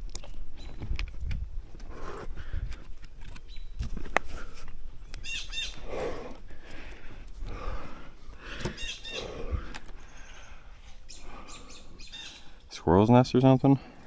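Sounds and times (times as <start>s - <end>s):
hands and feet scraping tree bark: 0.0s - 10.1s
small bird chirping: 3.4s - 3.8s, 5.1s - 5.8s, 8.8s - 9.3s, 10.0s - 12.6s.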